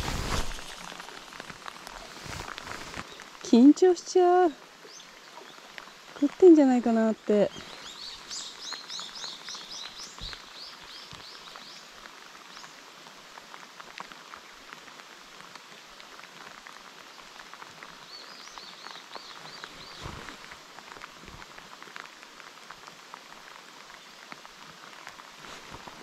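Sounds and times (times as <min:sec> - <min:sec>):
heavy rain on water: 0:00.0 - 0:26.0.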